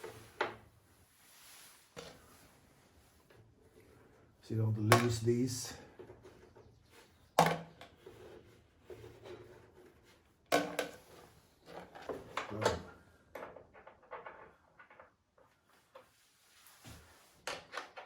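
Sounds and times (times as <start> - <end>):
small clicks and rattles: 11.6 - 16.1.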